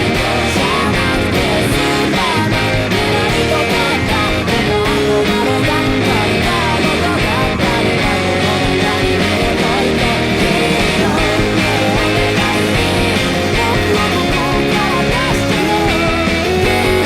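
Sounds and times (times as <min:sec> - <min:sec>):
guitar: 0:00.0 - 0:17.0
rock band backing track: 0:00.0 - 0:17.0.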